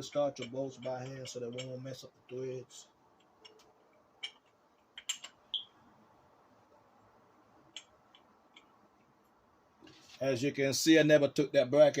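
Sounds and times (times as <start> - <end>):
metal bolts clicking: 0.0 - 2.4, 3.2 - 5.6.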